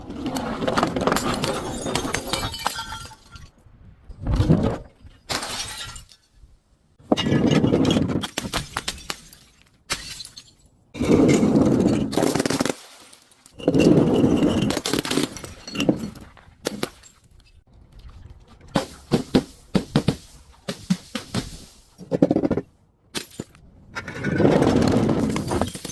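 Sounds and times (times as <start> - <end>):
glass crunching and breaking: 1.0 - 3.5, 5.3 - 6.4, 8.2 - 10.7, 25.2 - 25.9
sharp glass cracks: 8.2 - 10.6.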